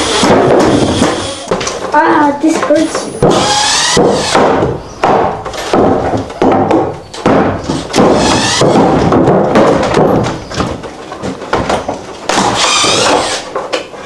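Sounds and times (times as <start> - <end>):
heavy thuds on wall: 0.0 - 1.7, 2.5 - 10.8.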